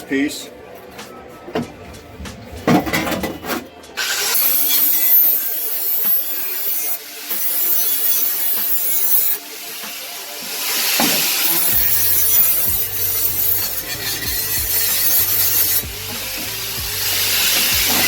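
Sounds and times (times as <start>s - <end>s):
angle grinder grinding steel: 4.0s - 18.0s.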